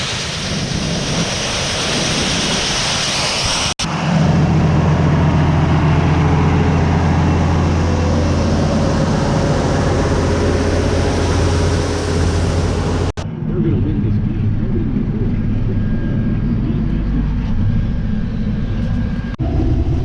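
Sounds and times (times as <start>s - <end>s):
rushing hiss: 0.0s - 3.8s
combine harvester engine droning: 0.0s - 20.0s.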